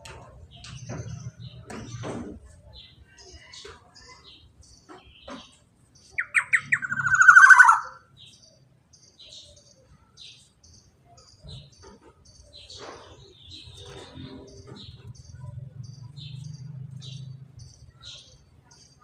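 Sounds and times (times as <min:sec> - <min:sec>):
faint high chirps: 0:06.0 - 0:12.9.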